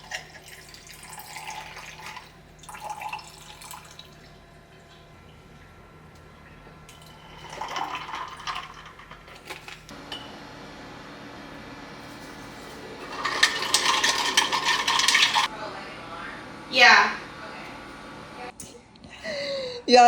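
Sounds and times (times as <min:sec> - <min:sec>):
dishes and utensils clattering: 0:06.9 - 0:10.3, 0:12.1 - 0:15.5.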